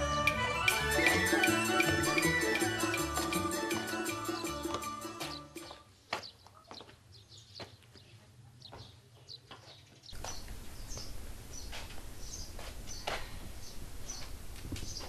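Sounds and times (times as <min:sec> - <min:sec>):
background noise: 0:00.0 - 0:15.0
small birds chirping: 0:05.2 - 0:15.0.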